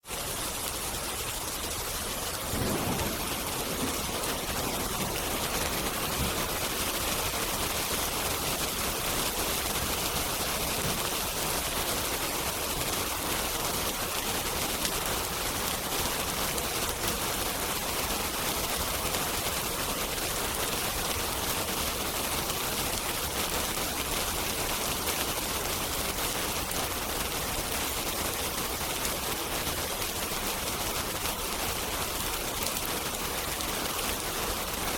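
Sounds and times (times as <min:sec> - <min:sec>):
rain hissing: 0:00.0 - 0:34.9
wood fire crackling: 0:00.0 - 0:34.9
distant thunder rumble: 0:02.4 - 0:07.6.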